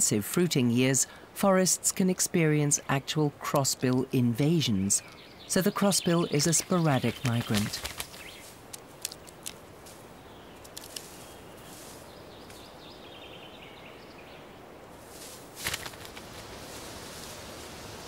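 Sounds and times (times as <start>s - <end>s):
steady outdoor hiss: 0.0s - 18.0s
rustle: 0.1s - 18.0s
clicks and cracks of pine cone: 7.5s - 10.0s, 10.6s - 11.3s.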